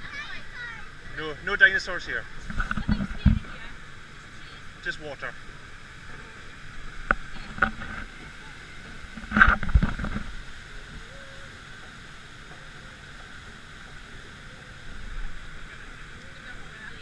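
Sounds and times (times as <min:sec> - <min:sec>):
rushing river water: 0:00.0 - 0:17.0.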